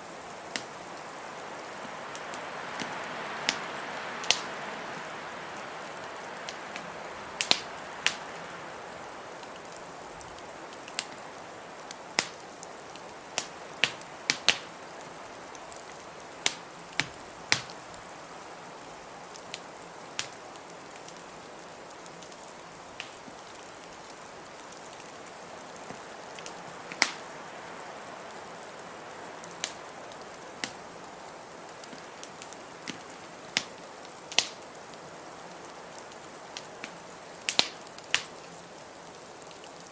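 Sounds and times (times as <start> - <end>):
wood fire crackling and popping: 0.1 - 27.6, 28.5 - 39.9
blizzard wind whooshing: 0.8 - 10.4.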